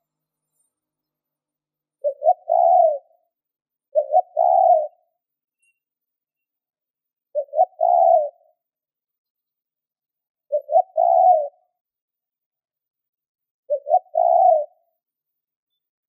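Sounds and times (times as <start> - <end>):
dove cooing: 2.0 - 3.2, 3.9 - 5.1, 7.3 - 8.6, 10.5 - 11.6, 13.7 - 14.8.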